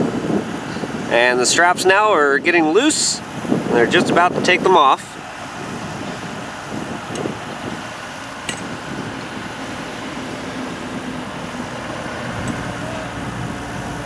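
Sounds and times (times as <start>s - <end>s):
heavy construction machinery running: 0.0s - 14.0s
deep engine rumble: 5.2s - 14.0s.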